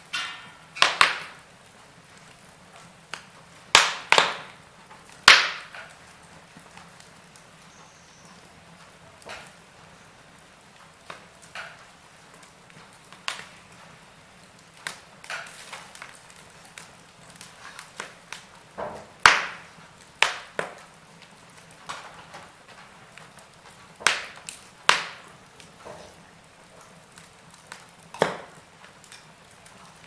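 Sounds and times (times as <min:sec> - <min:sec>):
low steady hiss: 0:00.0 - 0:30.0
wood fire crackling: 0:00.0 - 0:30.0
sharp pops and snaps: 0:00.1 - 0:01.5, 0:02.2 - 0:08.5, 0:10.7 - 0:26.2, 0:26.8 - 0:30.0.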